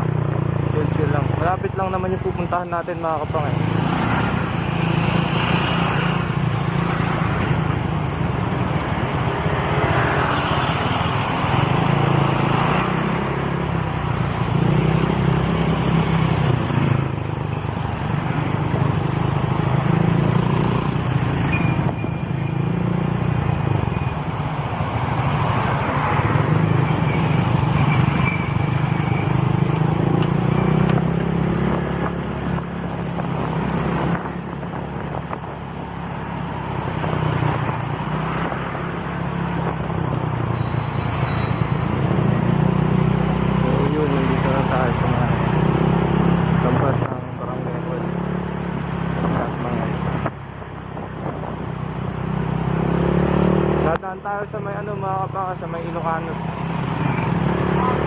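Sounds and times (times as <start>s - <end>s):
wind rushing over microphone: 29.9s - 40.5s, 48.9s - 53.8s.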